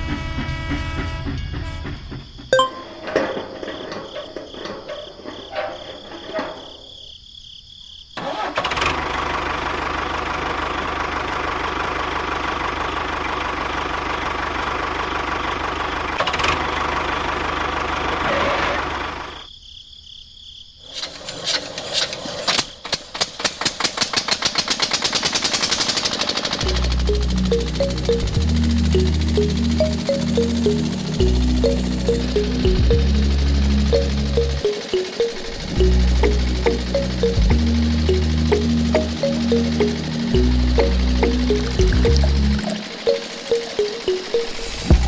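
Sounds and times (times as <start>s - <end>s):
motor running: 26.5s - 45.0s
motor pulsing: 26.6s - 45.0s.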